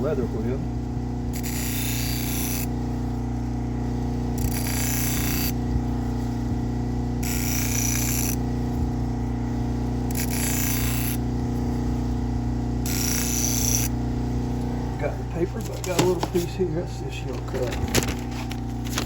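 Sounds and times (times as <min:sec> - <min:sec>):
stropping wheel motor humming: 0:00.0 - 0:19.0.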